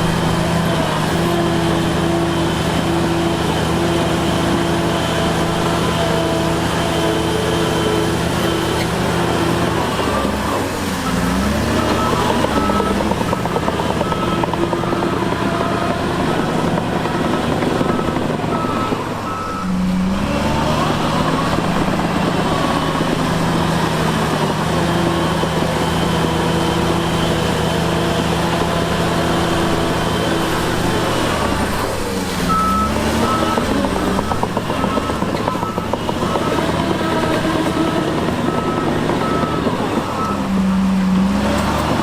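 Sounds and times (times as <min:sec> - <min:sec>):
heavy diesel machinery engine: 0:00.0 - 0:42.0
reversing alarm beeping: 0:00.3 - 0:23.4, 0:32.4 - 0:40.9.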